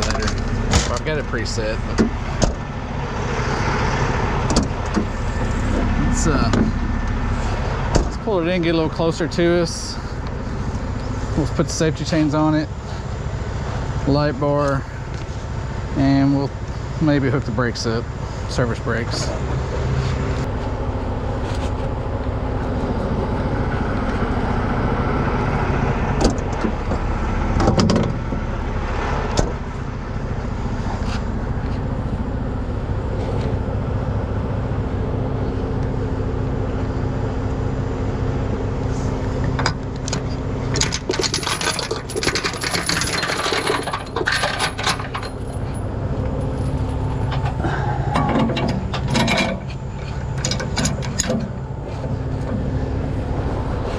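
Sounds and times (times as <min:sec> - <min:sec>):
diesel engine running: 0:00.0 - 0:53.9
metal chains clinking and rattling: 0:40.1 - 0:51.5.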